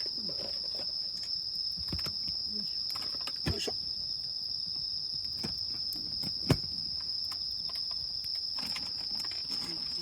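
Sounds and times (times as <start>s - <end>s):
campfire pop: 0.0s - 4.0s
crickets chirping: 0.0s - 10.0s.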